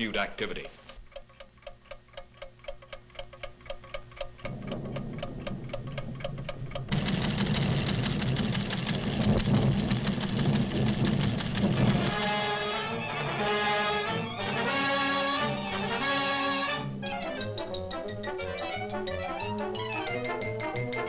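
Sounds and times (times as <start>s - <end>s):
instruments ticking rapidly: 0.0s - 12.6s, 17.4s - 21.0s
low rumble: 4.4s - 12.2s.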